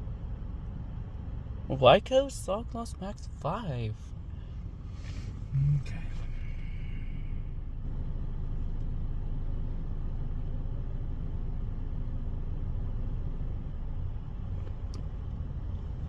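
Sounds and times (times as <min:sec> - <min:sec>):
vehicles running: 0:00.0 - 0:16.0
car wash rumble: 0:01.6 - 0:07.9.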